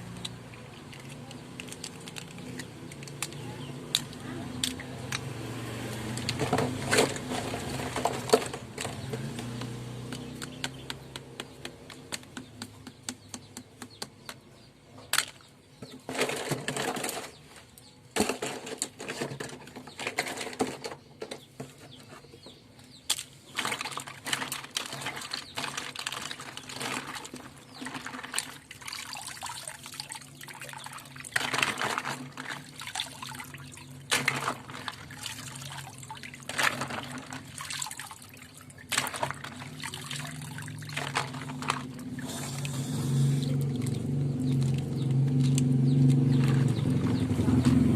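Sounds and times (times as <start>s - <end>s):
water splashing and gurgling: 23.6s - 47.9s.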